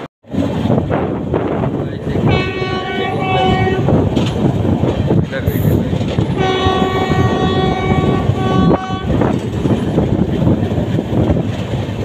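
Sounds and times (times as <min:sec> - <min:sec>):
moving train rumble: 0:00.0 - 0:12.0
train horn: 0:02.2 - 0:04.0, 0:06.3 - 0:09.3.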